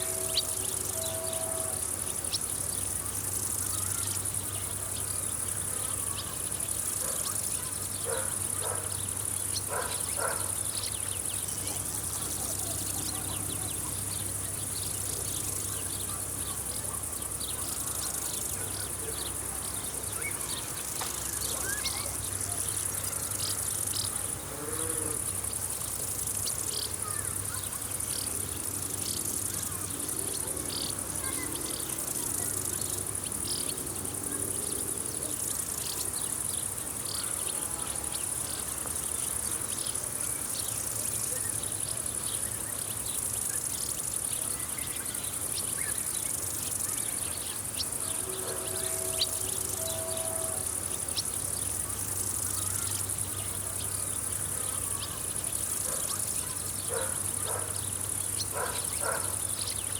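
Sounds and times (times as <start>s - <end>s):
insect chirps: 0.0s - 59.9s
insects high-pitched trill: 0.0s - 59.9s.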